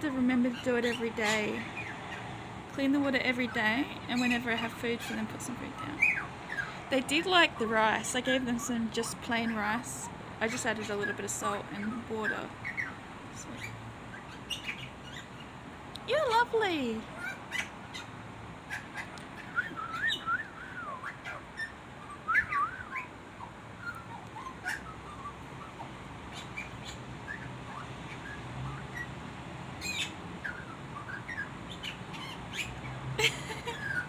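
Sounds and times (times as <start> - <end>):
small bird singing and chirping: 2.8 - 18.1, 18.7 - 29.2.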